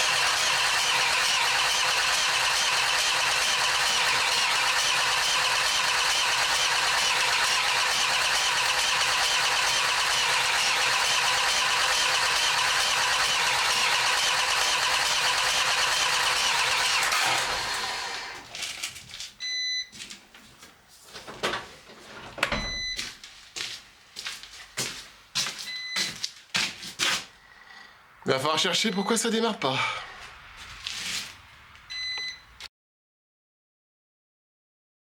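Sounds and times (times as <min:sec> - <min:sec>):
starter motor cranking: 0:00.0 - 0:18.9
short electronic beeps: 0:25.7 - 0:26.1, 0:28.8 - 0:29.3, 0:31.9 - 0:32.6.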